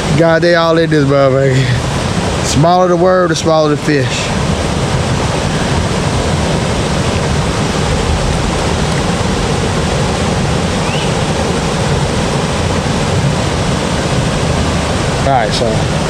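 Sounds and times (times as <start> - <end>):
loud steady rushing noise: 0.0 - 16.0.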